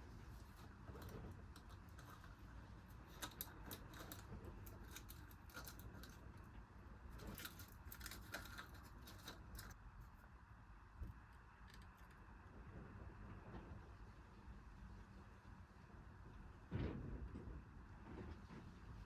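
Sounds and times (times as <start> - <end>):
small clicks and light scrapes: 0.0 - 10.3, 11.0 - 12.6.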